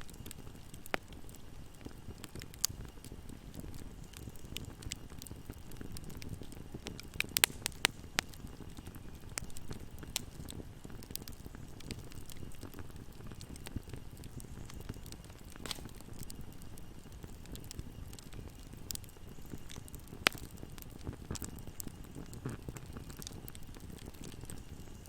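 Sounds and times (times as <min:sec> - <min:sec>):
loud pops of burning wood: 0:00.0 - 0:25.0
wood fire burning: 0:00.0 - 0:25.0.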